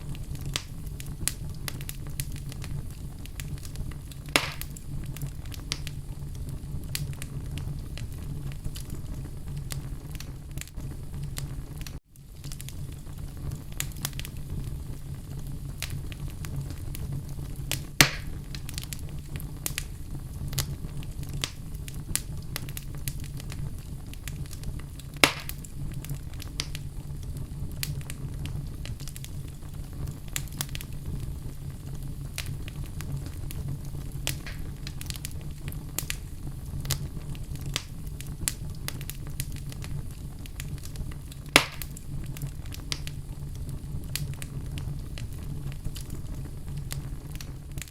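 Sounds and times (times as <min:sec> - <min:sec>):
fire crackling and popping: 0:00.0 - 0:47.9
fire flames rumbling: 0:00.0 - 0:47.9.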